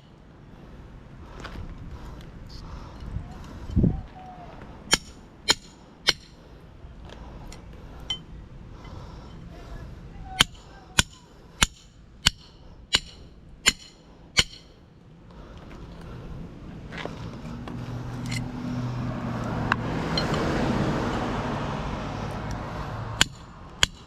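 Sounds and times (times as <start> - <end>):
hammer clanging on metal: 10.4 - 14.7.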